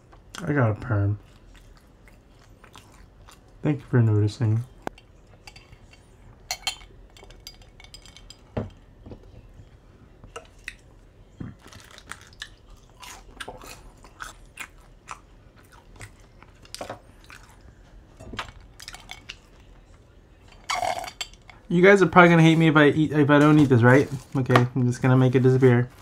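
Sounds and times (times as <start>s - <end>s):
person chewing food: 1.2s - 3.6s, 10.3s - 20.1s.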